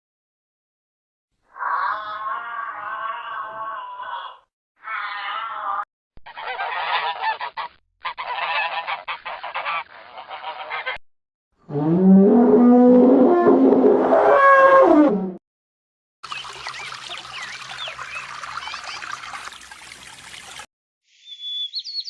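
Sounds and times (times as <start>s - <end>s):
deep drawn-out animal call: 1.5s - 7.3s, 11.7s - 15.4s.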